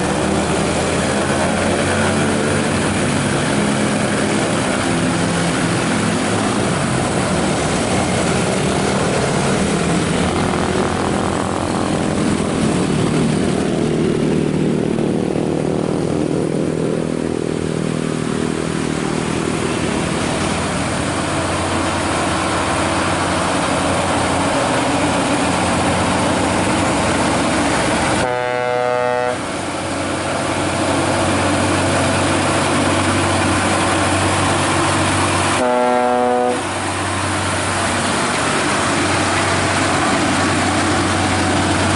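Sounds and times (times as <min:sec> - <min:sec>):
truck engines running: 0:00.0 - 0:41.9
truck horn blast: 0:28.2 - 0:29.7, 0:35.6 - 0:36.8.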